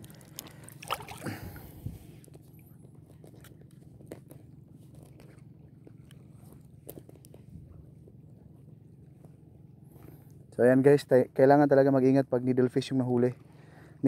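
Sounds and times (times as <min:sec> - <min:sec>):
low steady hum: 0:00.0 - 0:14.0
hand splashing in water: 0:00.3 - 0:01.7.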